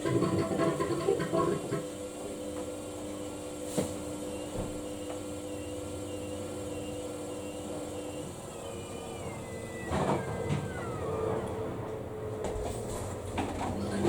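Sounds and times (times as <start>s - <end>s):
washing machine motor humming: 4.4s - 14.0s.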